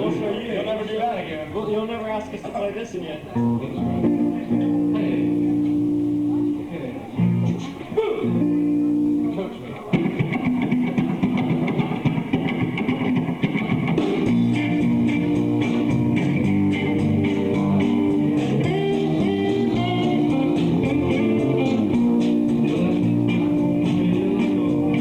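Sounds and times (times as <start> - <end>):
bass guitar: 3.4 - 25.0
electric guitars: 3.4 - 25.0
steady drum beat: 10.1 - 25.0.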